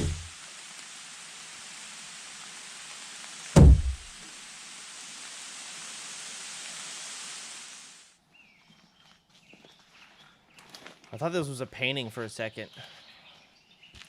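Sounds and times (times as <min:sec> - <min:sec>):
heavy deep thump: 0:00.0 - 0:00.3, 0:03.6 - 0:04.1
rain hiss: 0:00.0 - 0:08.2.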